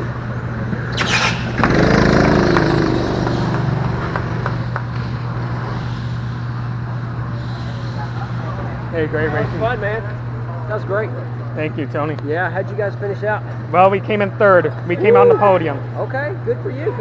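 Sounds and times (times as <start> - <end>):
steady low hum: 0.0 - 17.0
vehicle engine revving: 0.9 - 9.8.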